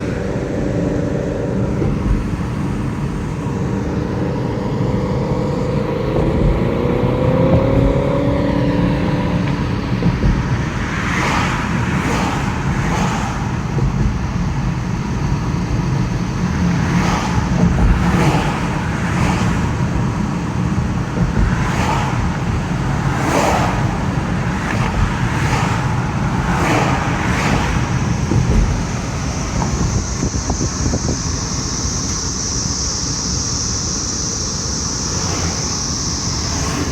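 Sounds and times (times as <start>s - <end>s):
engine note rising: 0.0s - 12.4s
cicadas droning: 0.0s - 36.9s
road traffic rumble: 0.0s - 36.9s.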